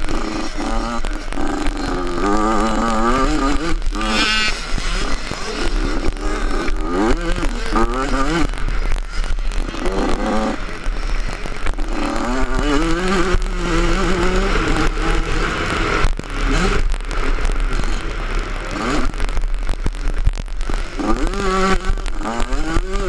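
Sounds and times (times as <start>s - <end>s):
motocross bike engine revving: 0.0s - 23.0s.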